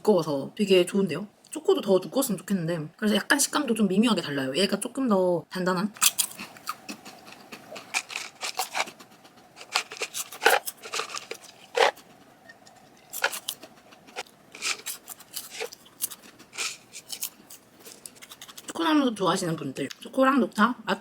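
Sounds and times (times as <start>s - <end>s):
chewing crunchy popcorn: 6.0s - 18.8s.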